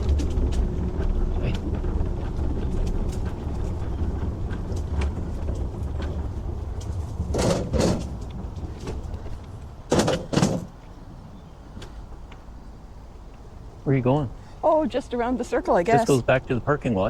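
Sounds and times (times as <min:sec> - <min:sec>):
light clicks and rattles: 0:00.0 - 0:10.9
wind buffeting microphone: 0:00.0 - 0:16.4.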